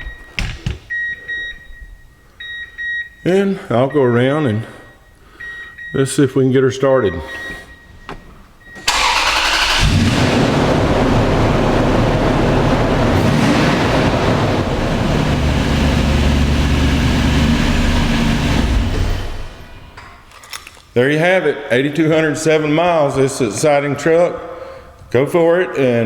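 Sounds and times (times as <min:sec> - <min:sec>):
truck engine cranking and running: 0:08.8 - 0:19.9.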